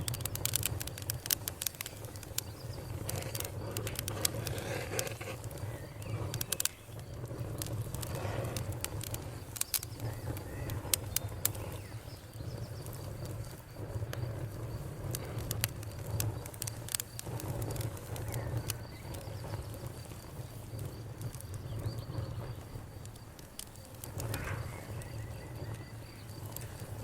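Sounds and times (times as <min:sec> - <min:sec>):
birds calling: 0:00.0 - 0:13.1, 0:23.8 - 0:27.0
campfire crackling and popping: 0:00.0 - 0:27.0
low rumble of burning: 0:00.0 - 0:27.0.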